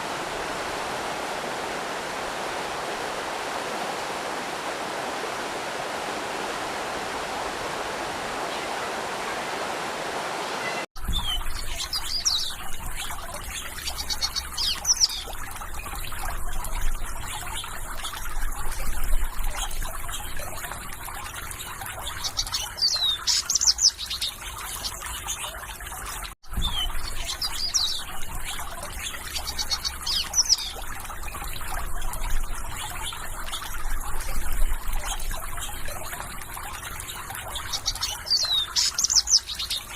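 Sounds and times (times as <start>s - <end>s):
stream water rushing: 0.0s - 10.9s
water trickling: 0.0s - 39.9s
small birds chirping: 10.4s - 18.3s, 19.4s - 25.6s, 26.5s - 39.9s.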